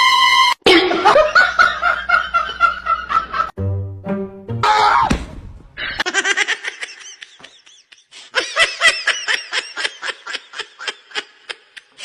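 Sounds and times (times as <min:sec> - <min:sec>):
person laughing: 0:05.8 - 0:12.0.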